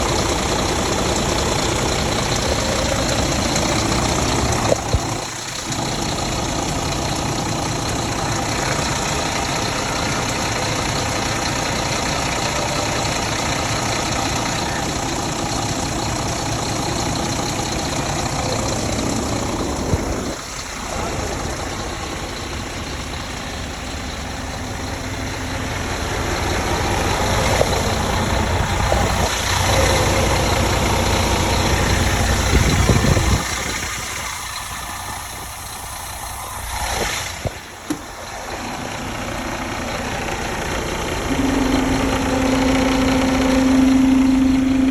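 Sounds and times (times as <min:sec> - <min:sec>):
diesel truck engine idling: 0:00.0 - 0:44.9
steady tone: 0:37.6 - 0:44.9.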